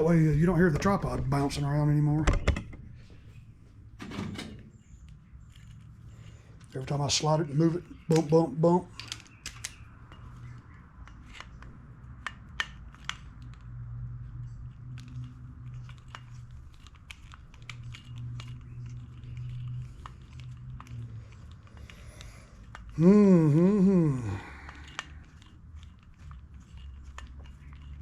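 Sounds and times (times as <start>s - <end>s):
person humming: 22.9s - 24.8s.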